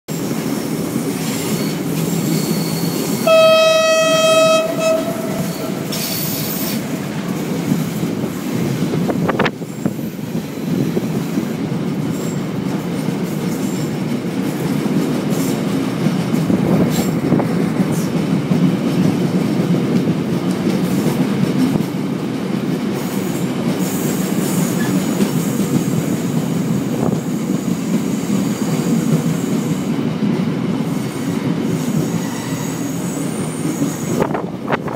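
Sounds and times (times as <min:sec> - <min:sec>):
train rumbling on track: 0:00.1 - 0:34.9
train horn blast: 0:03.2 - 0:06.5.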